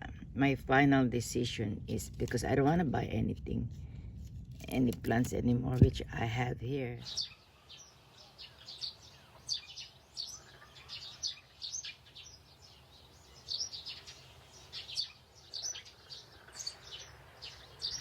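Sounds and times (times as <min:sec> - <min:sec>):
small birds chirping: 0:04.3 - 0:18.0.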